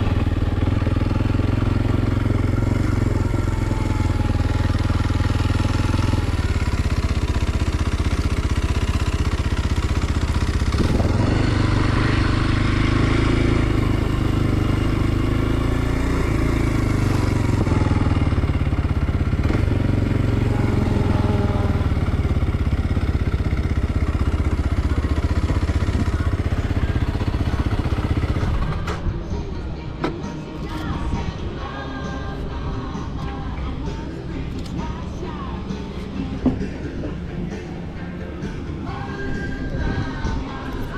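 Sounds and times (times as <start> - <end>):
motorcycle engine revving: 0.0 - 29.6.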